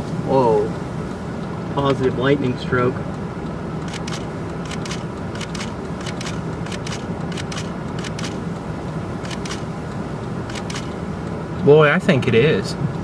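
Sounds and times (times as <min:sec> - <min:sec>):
vehicle cabin hum: 0:00.0 - 0:13.0
sharp high crackles: 0:03.8 - 0:11.1.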